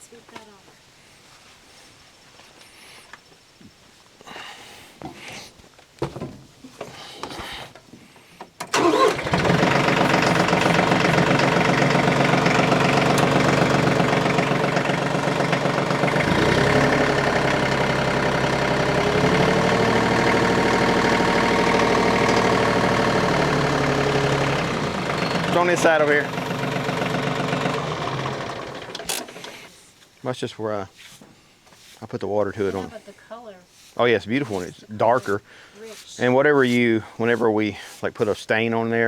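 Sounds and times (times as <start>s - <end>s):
sawmill engine running loudly: 8.8s - 29.6s.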